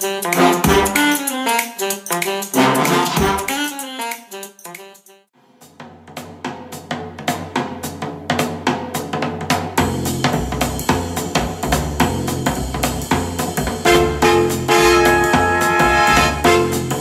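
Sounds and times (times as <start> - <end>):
drum kit beat: 0.0 - 5.0, 5.6 - 17.0
deep bass line: 9.8 - 17.0.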